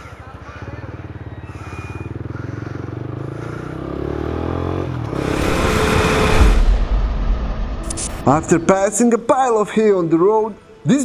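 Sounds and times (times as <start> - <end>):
motorcycle engine revving: 0.1 - 8.6
loud rushing noise: 5.1 - 9.4.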